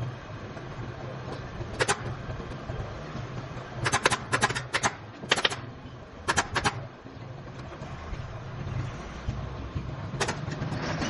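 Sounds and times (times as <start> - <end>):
steady low hum: 0.0 - 11.0
pneumatic staple gun clacks: 1.7 - 2.1, 3.8 - 5.6, 6.2 - 6.8, 10.2 - 10.9.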